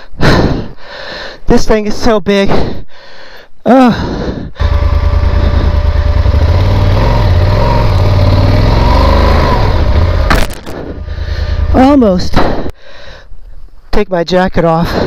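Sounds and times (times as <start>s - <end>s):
person grunting: 3.6s - 4.3s
motorcycle engine revving: 4.6s - 12.3s.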